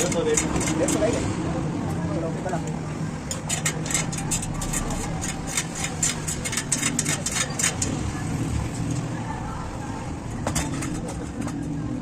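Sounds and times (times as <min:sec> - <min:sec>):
low hum of traffic: 0:00.0 - 0:12.0
metallic clicks of hand tools: 0:03.2 - 0:08.0.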